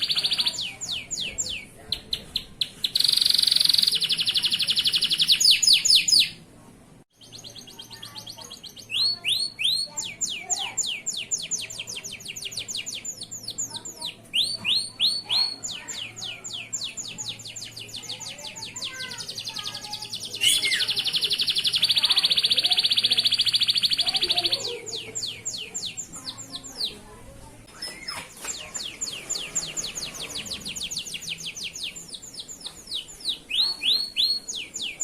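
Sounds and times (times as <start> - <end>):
canary singing: 0.0 - 6.4, 7.2 - 35.0.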